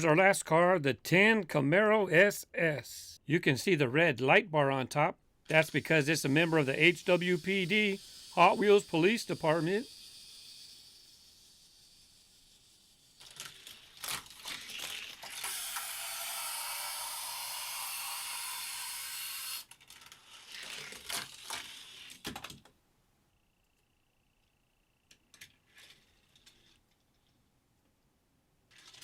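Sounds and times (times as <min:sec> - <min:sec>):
toy car on plastic track: 0:05.4 - 0:22.8, 0:25.0 - 0:27.4, 0:28.7 - 0:29.0.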